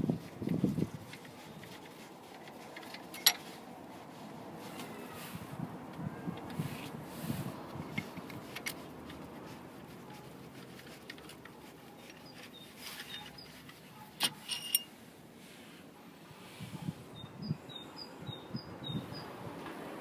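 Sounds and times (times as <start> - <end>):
small metal parts clicking: 1.1 - 3.6, 10.7 - 14.9
metal on metal clinks: 2.9 - 3.5, 14.2 - 14.9.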